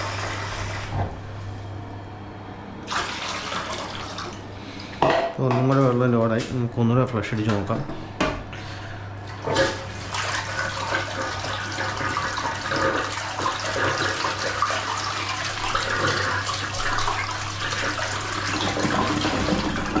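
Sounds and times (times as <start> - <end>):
toilet flushing: 0.0 - 1.6, 2.8 - 5.0, 8.7 - 20.0.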